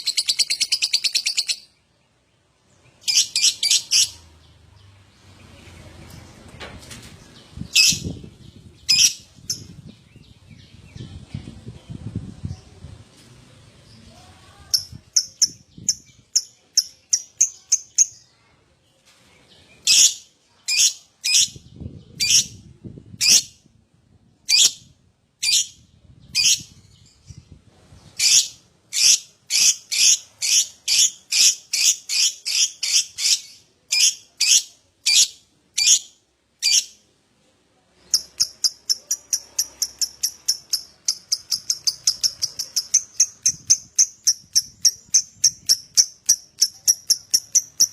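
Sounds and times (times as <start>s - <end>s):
lovebird high chattering calls: 0.0s - 1.7s, 3.0s - 4.2s, 7.7s - 8.1s, 8.8s - 9.7s, 26.4s - 26.7s, 28.2s - 37.0s, 38.1s - 47.9s.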